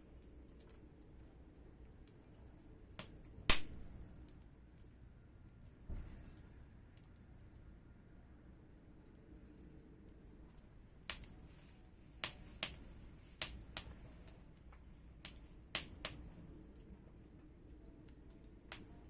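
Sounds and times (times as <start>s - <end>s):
firewood crackling and popping: 0.4s - 5.0s, 10.1s - 19.0s.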